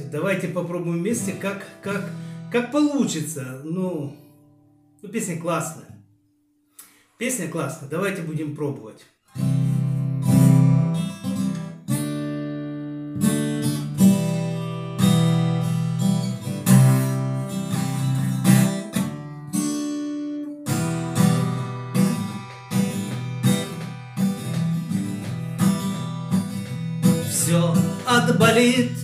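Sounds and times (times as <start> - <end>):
acoustic guitar strumming: 0.0 - 3.3, 9.2 - 29.0.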